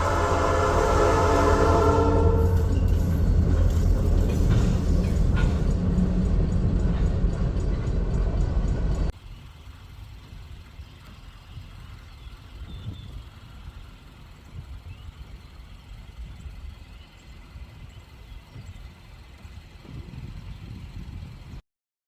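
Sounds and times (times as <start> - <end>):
horn sounding a chord: 0.0 - 2.7
loud low rumble: 0.0 - 9.1.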